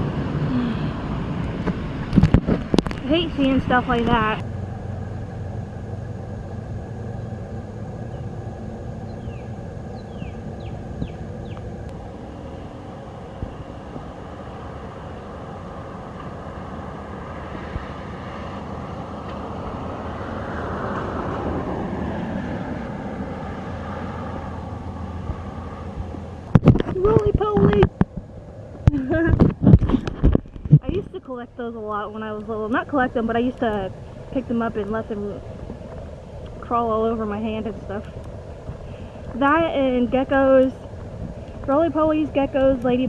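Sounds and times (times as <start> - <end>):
steady low hum: 0.0 - 43.0
vehicle passing: 0.0 - 43.0.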